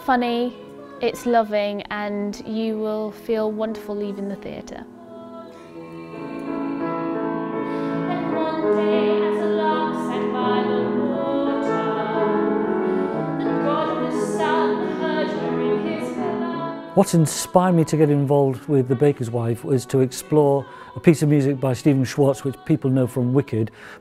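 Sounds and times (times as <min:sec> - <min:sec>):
instrumental accompaniment: 0:00.0 - 0:22.8
person singing with vibrato: 0:04.8 - 0:24.0.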